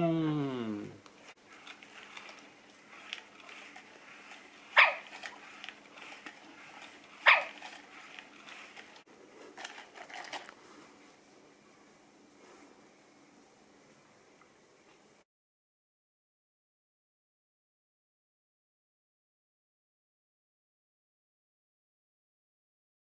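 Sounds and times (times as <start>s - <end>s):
robot dog barking: 4.8s - 5.1s, 7.2s - 7.6s
robot dog yipping: 4.8s - 5.1s, 7.2s - 7.6s.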